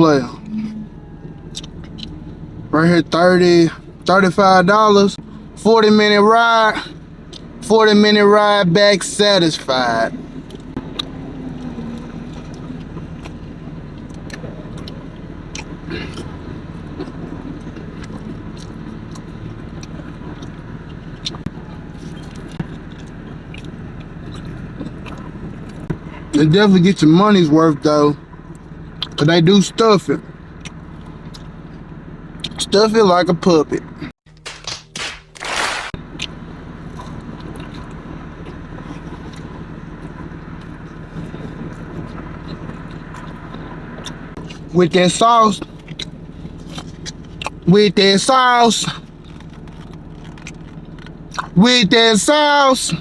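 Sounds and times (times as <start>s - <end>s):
car engine idling: 0.0s - 34.2s, 35.9s - 53.0s
low hum: 0.0s - 51.9s
person chewing and biting food: 1.4s - 2.2s, 10.4s - 26.1s, 28.5s - 29.2s, 30.6s - 32.6s, 34.4s - 44.7s, 45.6s - 47.6s, 48.9s - 51.6s.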